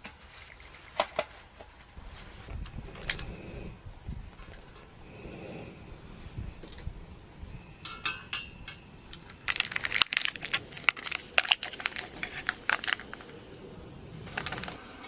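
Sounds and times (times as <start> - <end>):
small hard items clinking and rattling: 7.8 - 13.5, 14.2 - 14.8.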